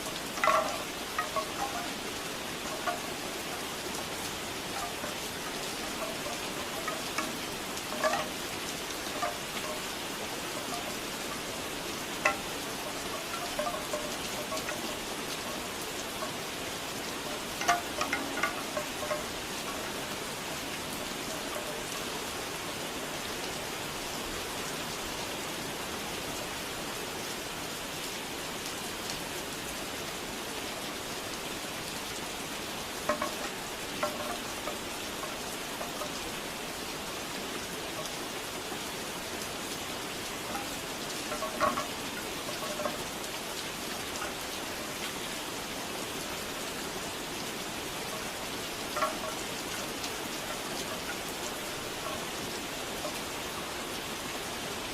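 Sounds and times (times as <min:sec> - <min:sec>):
bamboo wind chime clacking: 0:00.0 - 0:23.2, 0:32.9 - 0:38.9, 0:39.7 - 0:45.3, 0:46.3 - 0:54.8
steady rain falling: 0:00.0 - 0:54.9.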